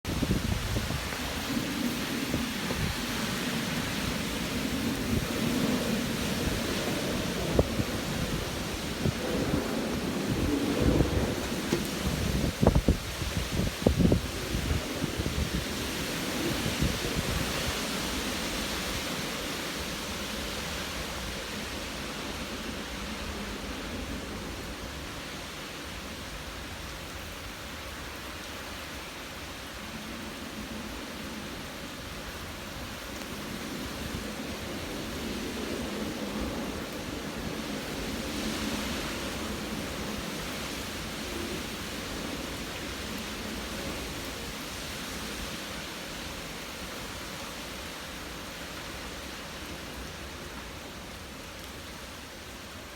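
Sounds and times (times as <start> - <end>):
wind buffeting microphone: 0.0 - 25.3
heavy rain hissing: 0.1 - 52.9.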